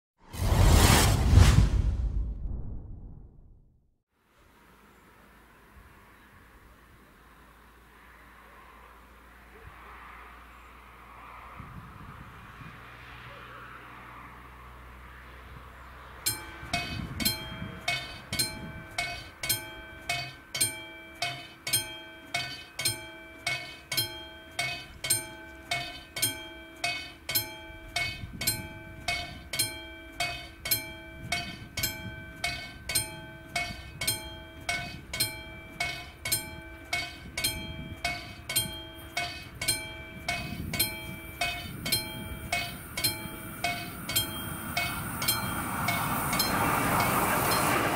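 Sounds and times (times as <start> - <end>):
level crossing warning bell: 16.2 - 47.9.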